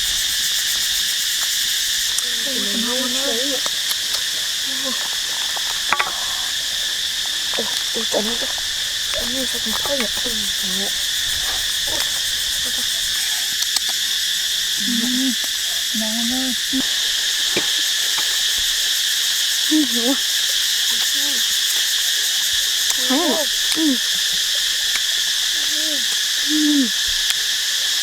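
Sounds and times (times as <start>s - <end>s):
insect chorus shrilling: 0.0s - 28.0s
low wavering calls: 1.9s - 13.6s, 22.7s - 27.1s.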